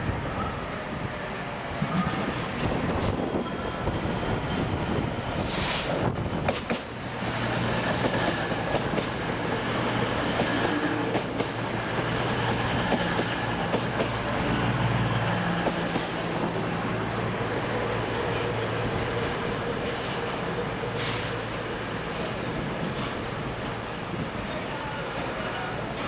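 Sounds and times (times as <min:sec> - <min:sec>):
freight train rolling past: 0:00.0 - 0:26.0.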